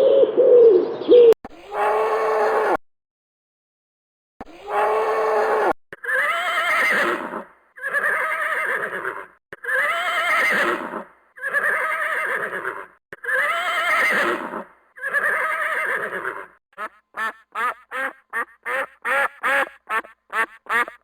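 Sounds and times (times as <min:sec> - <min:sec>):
horse whinnying: 0:06.0 - 0:16.6.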